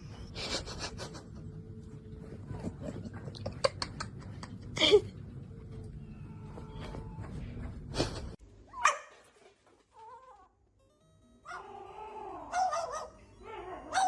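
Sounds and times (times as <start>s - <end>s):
pet animal crying: 11.4s - 14.0s.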